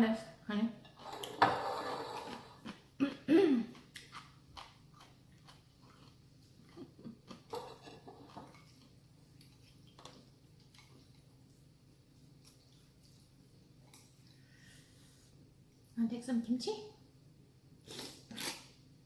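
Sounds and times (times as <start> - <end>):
utensils scraping dishes: 0.9 - 2.6
chewing: 3.7 - 11.6, 12.2 - 14.4.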